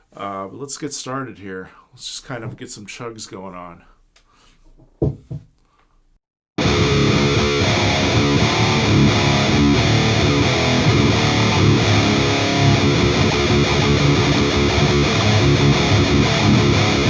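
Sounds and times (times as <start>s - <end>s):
distorted electric guitar riffs: 6.6s - 17.0s.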